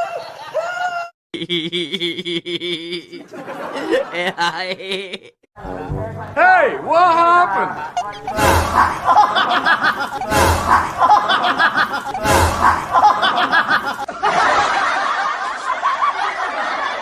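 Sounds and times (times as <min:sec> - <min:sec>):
person laughing: 0:01.4 - 0:05.5, 0:07.8 - 0:14.1.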